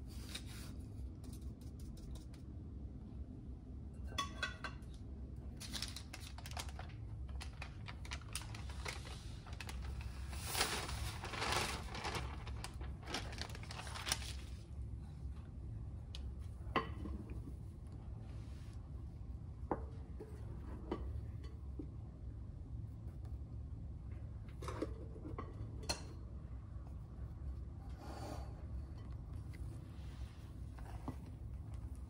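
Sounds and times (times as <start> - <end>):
paper rustling and crinkling: 5.6 - 14.8.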